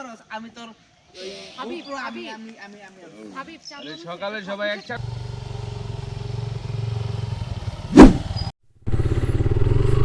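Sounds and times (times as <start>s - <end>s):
motorcycle engine running: 5.0s - 10.0s.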